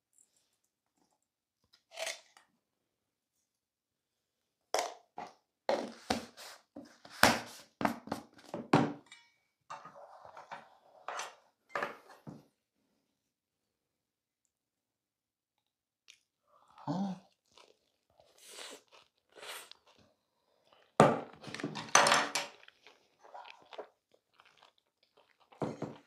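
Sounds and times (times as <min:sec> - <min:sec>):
close chewing of food: 0:16.1 - 0:21.8, 0:22.4 - 0:26.0.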